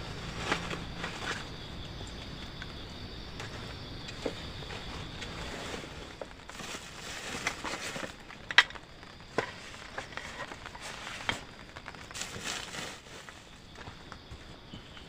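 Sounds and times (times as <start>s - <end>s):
material rustling and crinkling: 4.7s - 13.6s.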